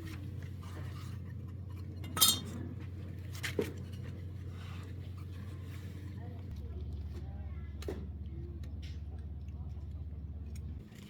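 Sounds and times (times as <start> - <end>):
metal tools clinking: 2.1 - 2.6.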